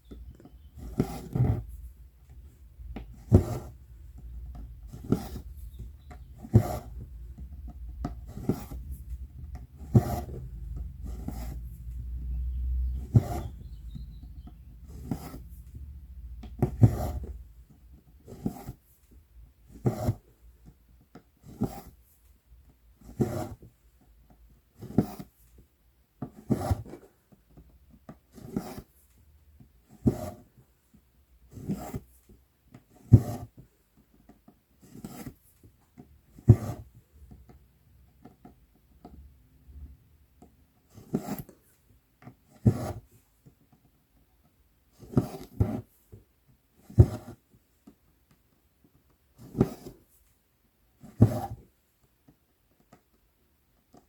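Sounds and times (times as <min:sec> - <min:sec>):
thread rasping through cloth: 0:00.0 - 0:18.8, 0:45.0 - 0:46.0.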